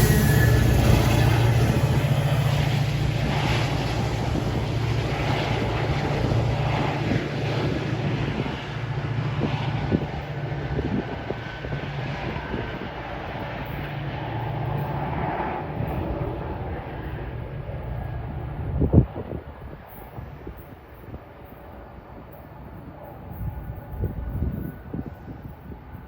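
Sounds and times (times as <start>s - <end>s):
noisy wash: 0.0s - 16.8s
train rumbling: 0.0s - 26.0s.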